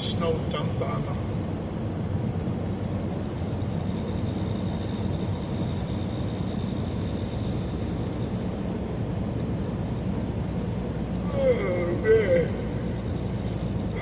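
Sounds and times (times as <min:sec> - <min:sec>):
truck engine and road rumble: 0:00.0 - 0:14.0.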